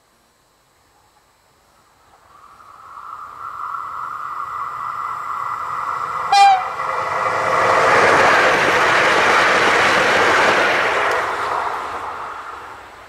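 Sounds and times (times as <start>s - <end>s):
train rushing past: 2.1s - 13.0s
train horn toot: 6.3s - 6.8s.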